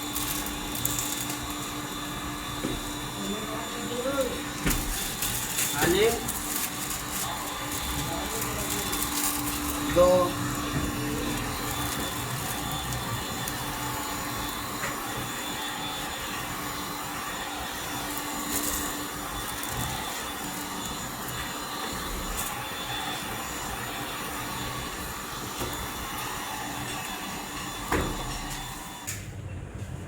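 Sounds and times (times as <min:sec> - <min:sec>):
woodworking machine humming: 0:00.0 - 0:29.1.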